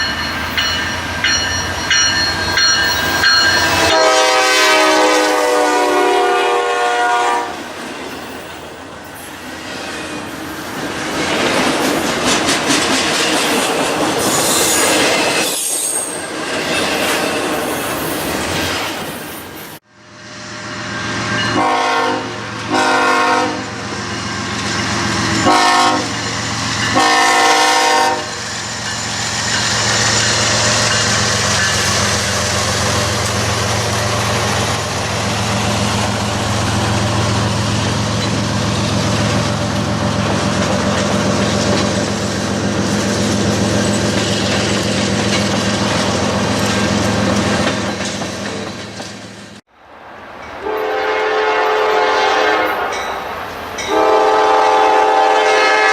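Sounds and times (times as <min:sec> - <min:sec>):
locomotive air horn blasts: 0:03.8 - 0:07.6, 0:21.6 - 0:23.8, 0:25.4 - 0:26.2, 0:26.9 - 0:28.4, 0:50.6 - 0:53.0, 0:53.9 - 0:55.9.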